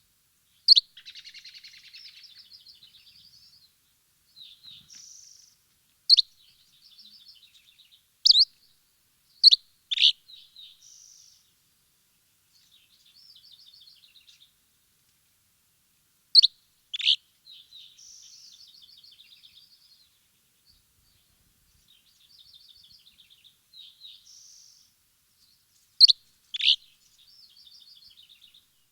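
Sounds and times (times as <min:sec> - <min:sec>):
soft rapid bird twittering: 0:08.3 - 0:08.5, 0:26.0 - 0:28.7.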